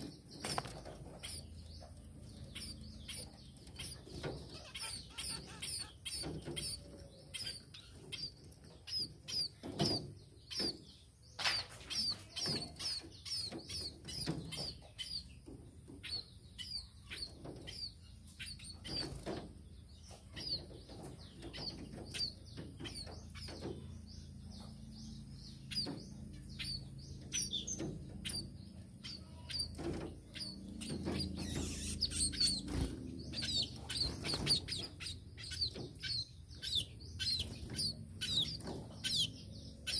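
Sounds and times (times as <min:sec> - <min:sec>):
wings fluttering: 0:00.0 - 0:14.8, 0:29.5 - 0:39.9
birds chirping: 0:00.0 - 0:39.9.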